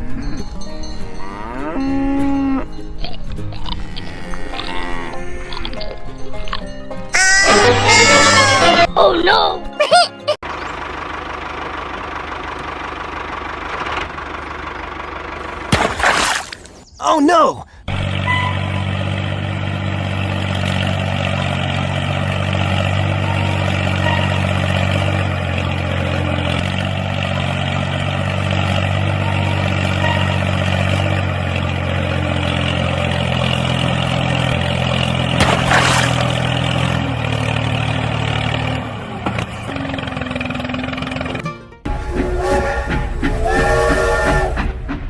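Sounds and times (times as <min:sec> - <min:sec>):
tractor engine running: 0:10.4 - 0:16.9, 0:17.7 - 0:45.0.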